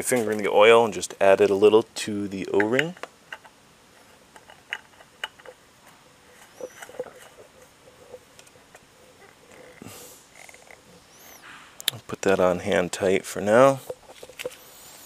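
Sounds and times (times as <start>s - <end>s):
oil filter clicking and tapping: 2.5s - 5.6s.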